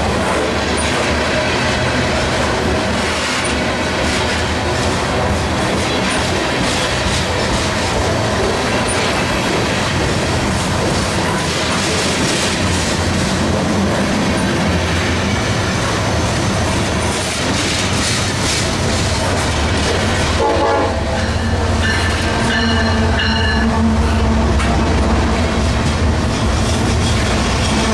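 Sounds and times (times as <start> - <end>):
freight train rumbling: 0.0 - 27.9
locomotive horn: 19.8 - 25.9, 27.1 - 27.9.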